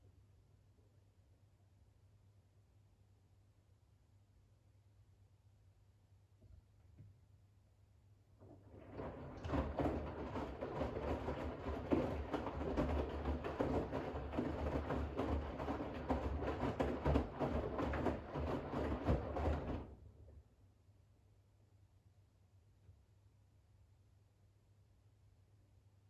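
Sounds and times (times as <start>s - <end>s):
washing machine drum tumbling wet load: 8.4s - 20.0s.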